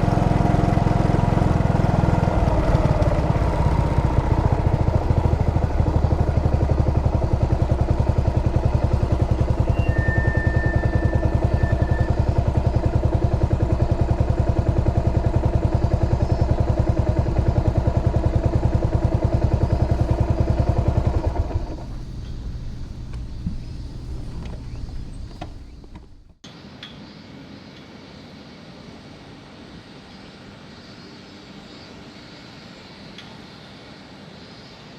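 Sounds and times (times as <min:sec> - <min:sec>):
motorcycle engine idling: 0:00.0 - 0:26.4.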